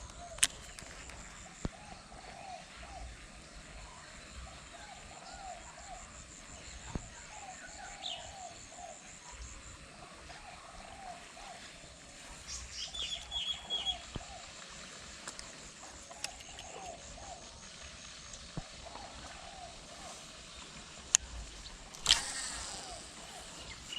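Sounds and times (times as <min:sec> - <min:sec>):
bird chirps: 0:12.5 - 0:14.1
fast pulsing insect trill: 0:21.4 - 0:23.9
short repeated animal calls: 0:22.0 - 0:23.9.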